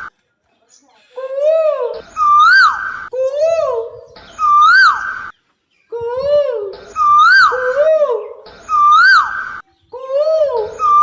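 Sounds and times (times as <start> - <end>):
koel bird calls: 3.8 - 11.0.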